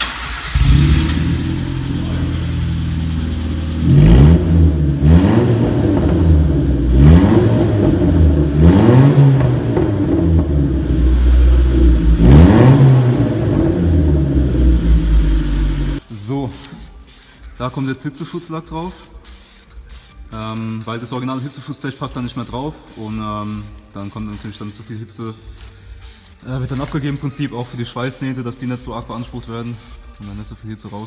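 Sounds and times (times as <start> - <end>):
loud car engine revving: 0.0 - 16.0.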